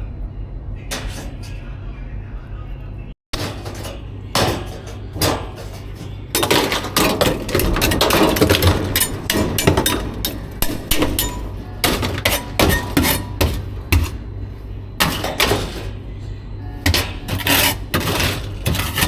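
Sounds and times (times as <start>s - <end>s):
steady low hum: 0.0s - 19.0s
hard objects knocking and clattering: 3.4s - 14.2s, 15.0s - 16.0s, 16.9s - 19.0s.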